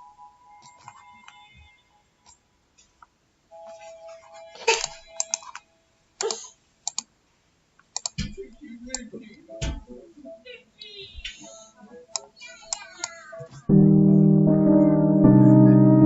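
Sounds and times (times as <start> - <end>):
computer keyboard and mouse clicks: 4.8 - 5.6, 6.2 - 7.1, 7.8 - 9.8
music sample loop: 13.7 - 16.0.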